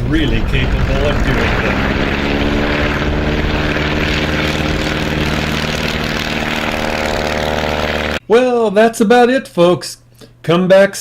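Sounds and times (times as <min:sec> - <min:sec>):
propeller plane engine droning: 0:00.0 - 0:08.2.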